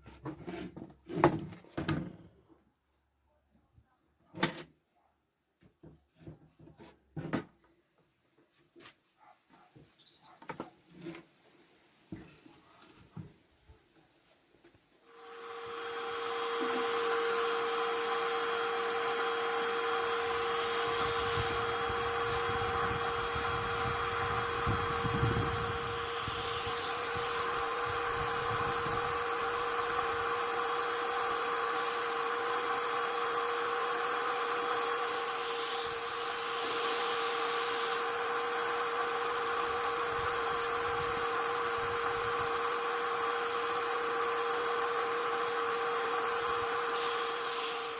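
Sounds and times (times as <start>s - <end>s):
power tool motor whining: 15.0s - 47.9s.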